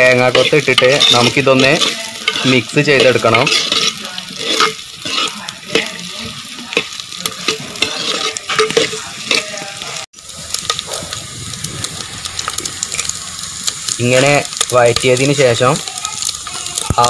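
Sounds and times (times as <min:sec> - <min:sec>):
metal spoon scraping pot: 0:00.0 - 0:11.2
food sizzling in hot oil: 0:00.0 - 0:17.0.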